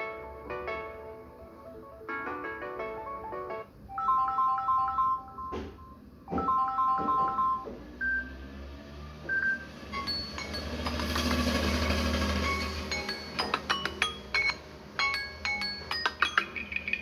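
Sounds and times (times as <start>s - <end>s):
phone ringtone melody: 0.0s - 8.5s, 9.3s - 17.0s
high beeps: 5.3s - 8.4s, 9.3s - 10.8s.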